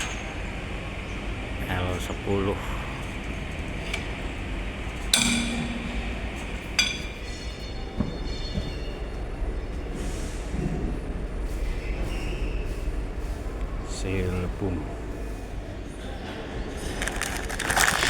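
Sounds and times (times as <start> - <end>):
steady low hum: 0.0 - 9.9
steel tools clinking: 2.9 - 7.9.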